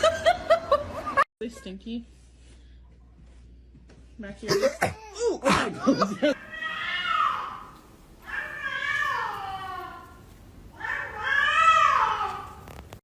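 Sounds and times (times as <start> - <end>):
cat meowing: 6.4 - 10.2, 10.8 - 12.8.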